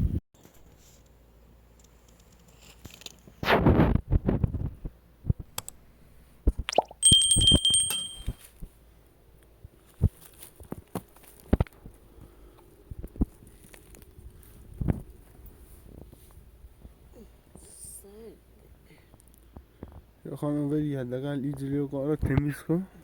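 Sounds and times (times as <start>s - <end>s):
bright ringing ding: 7.0s - 8.4s.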